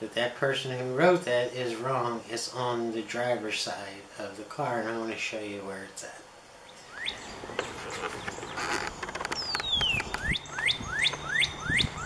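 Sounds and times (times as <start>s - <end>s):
songbird singing: 6.5s - 12.0s.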